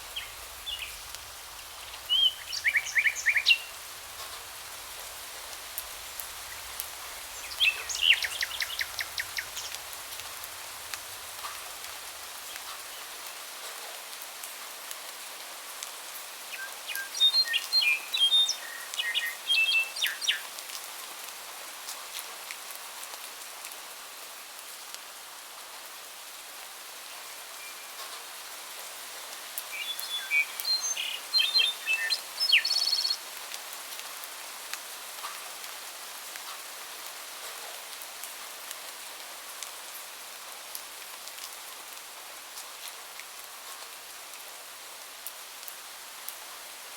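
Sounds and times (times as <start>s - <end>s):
songbirds singing: 0.0s - 10.9s, 16.5s - 20.5s, 29.4s - 33.3s
rain hiss: 0.0s - 46.9s.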